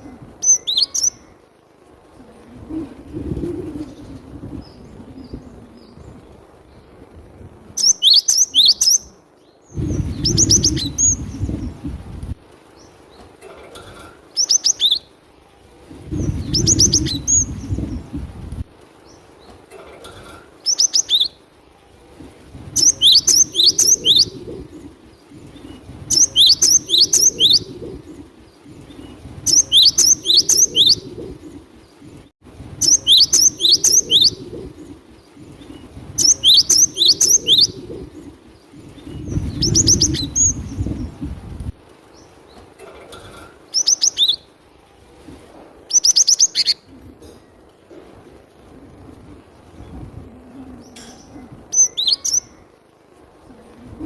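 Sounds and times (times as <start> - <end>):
bird whistled song: 0.4 - 1.3, 7.8 - 9.1, 9.7 - 11.5, 14.4 - 15.1, 16.2 - 17.8, 20.7 - 21.4, 22.8 - 24.4, 25.6 - 27.7, 29.4 - 31.1, 32.8 - 34.4, 36.2 - 37.8, 39.1 - 40.9, 43.8 - 44.5, 45.9 - 46.8, 51.8 - 52.6.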